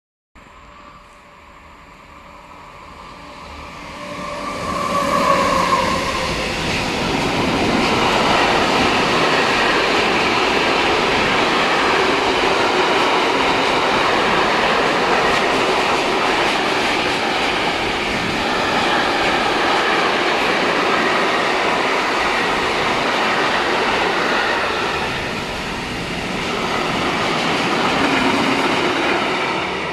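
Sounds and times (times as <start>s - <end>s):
locomotive whine: 0.4s - 10.2s.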